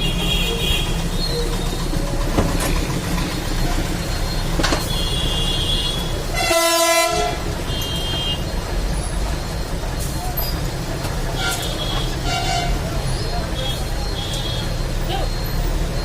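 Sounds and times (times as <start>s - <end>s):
passing traffic rumble: 0.0s - 16.0s
vehicle horn blast: 4.8s - 8.4s, 11.4s - 12.8s.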